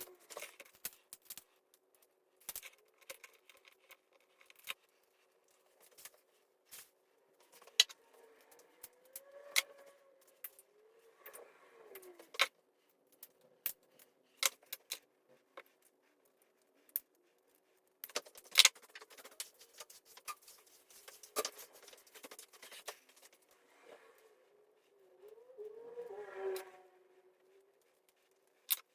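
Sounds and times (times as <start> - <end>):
hand tools clicking and clinking: 16.9 - 23.6.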